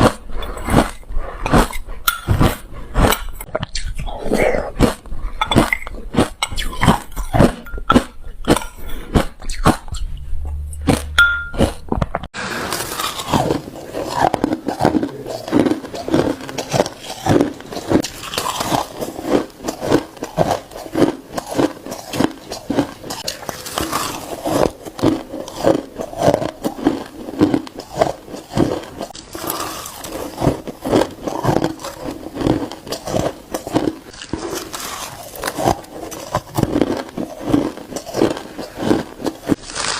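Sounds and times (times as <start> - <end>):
ice being crunched: 12.5 - 39.9.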